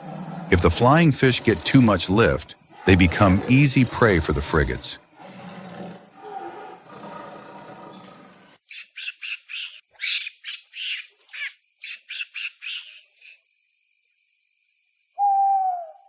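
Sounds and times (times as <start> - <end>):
high insect-like drone: 0.0 - 5.2.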